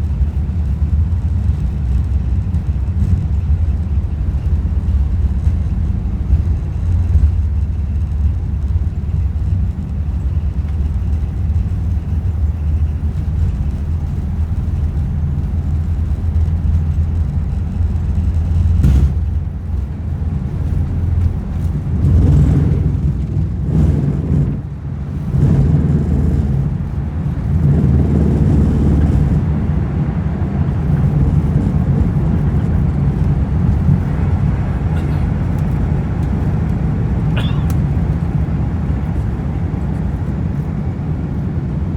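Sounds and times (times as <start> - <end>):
aircraft cabin engine rumble: 0.0 - 41.9.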